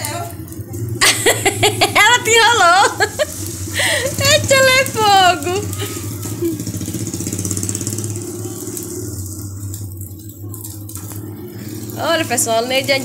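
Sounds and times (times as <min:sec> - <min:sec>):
engine running with low pulsing: 0:00.0 - 0:13.0.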